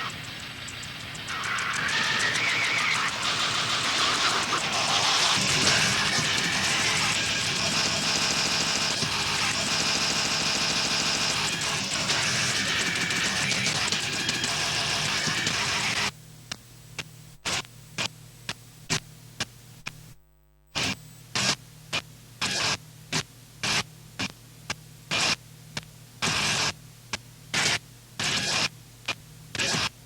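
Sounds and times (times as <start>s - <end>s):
hissing static bursts: 0.0s - 7.6s
loud dense noise: 0.0s - 9.8s.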